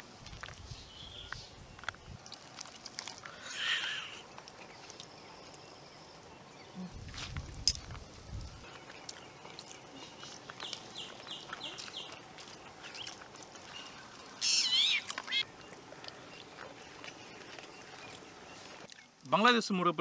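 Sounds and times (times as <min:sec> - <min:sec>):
birds chirping: 0:03.2 - 0:19.2.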